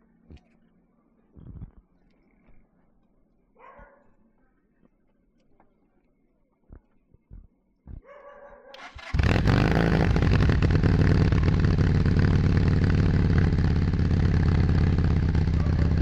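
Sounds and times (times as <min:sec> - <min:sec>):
motorcycle engine idling: 0:08.9 - 0:16.0.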